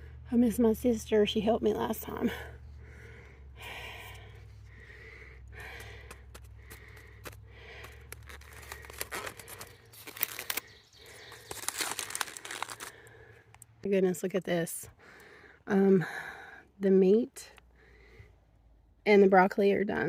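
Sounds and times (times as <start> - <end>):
low steady rumble: 0.0 - 20.0
small clicks and scrapes: 5.6 - 12.9
foil packet crinkling and tearing: 6.3 - 13.2.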